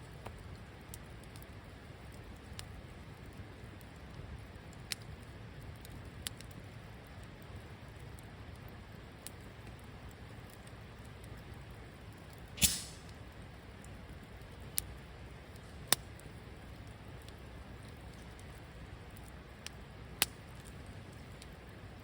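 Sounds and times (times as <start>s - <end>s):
campfire rumble and crackles: 0.0s - 22.0s
loud sharp pop: 12.6s - 13.1s.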